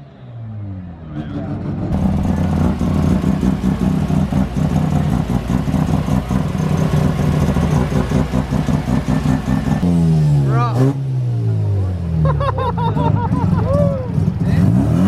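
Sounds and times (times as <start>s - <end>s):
rotary car engine idling roughly: 2.0s - 9.8s.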